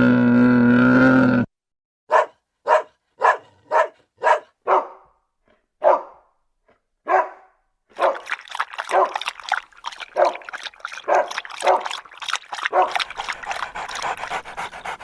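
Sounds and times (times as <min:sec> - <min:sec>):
dog barking: 0:02.1 - 0:05.2, 0:05.8 - 0:06.3, 0:07.0 - 0:09.3, 0:10.1 - 0:12.0, 0:12.6 - 0:13.3.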